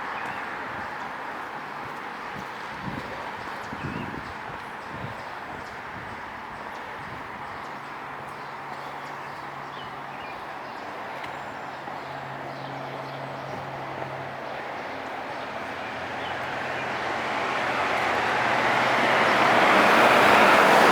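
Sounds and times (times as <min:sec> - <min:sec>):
passing vehicles: 0:00.0 - 0:20.9
low engine hum: 0:11.0 - 0:20.9.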